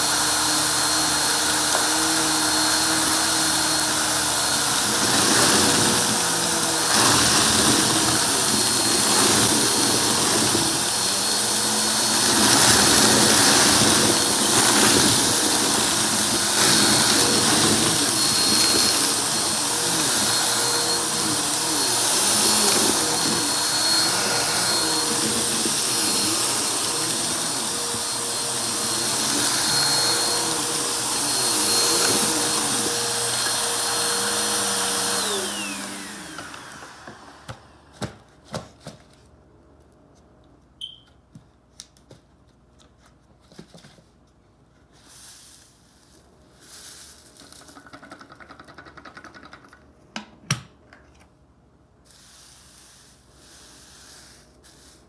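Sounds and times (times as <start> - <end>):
vacuum cleaner motor whine: 0.0 - 38.1.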